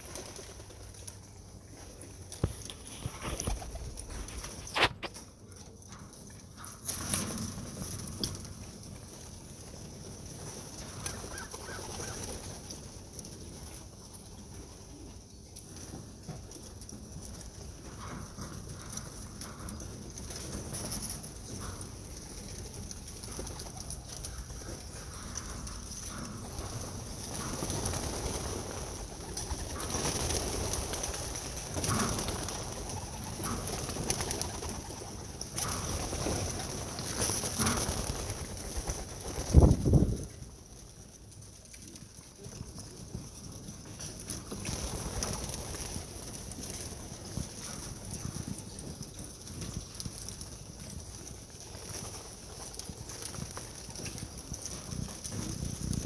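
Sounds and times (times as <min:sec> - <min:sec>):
rustling: 0:02.3 - 0:05.2
pigeons cooing and clucking: 0:10.0 - 0:12.8, 0:16.9 - 0:39.2.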